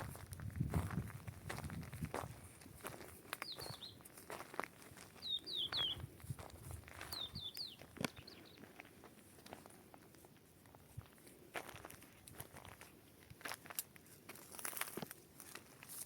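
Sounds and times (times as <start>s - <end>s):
small bird chirping: 3.4s - 4.0s, 5.2s - 6.1s, 7.0s - 8.7s.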